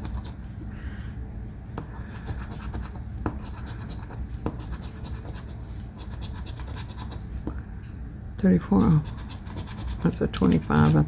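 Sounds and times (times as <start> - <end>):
coin scratching lottery ticket: 2.0 - 7.2, 8.8 - 11.0.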